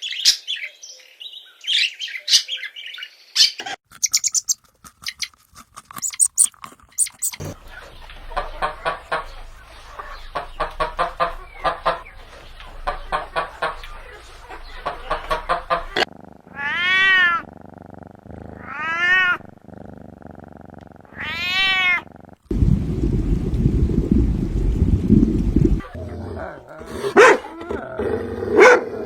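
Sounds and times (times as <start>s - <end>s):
cat meowing: 16.5s - 17.5s, 18.6s - 19.4s, 21.1s - 22.1s.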